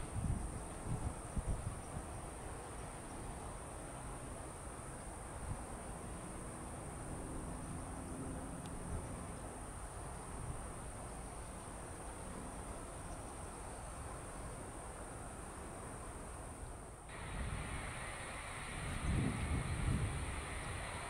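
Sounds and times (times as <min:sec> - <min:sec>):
high-pitched insect chorus: 0:09.0 - 0:21.0.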